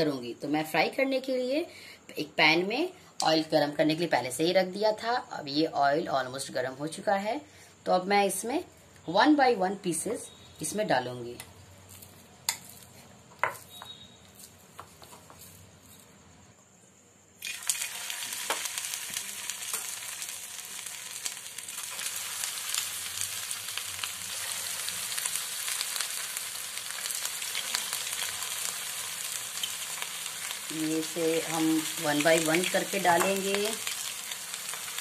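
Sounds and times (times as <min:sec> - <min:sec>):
chicken sizzling in hot oil: 0:17.4 - 0:35.0.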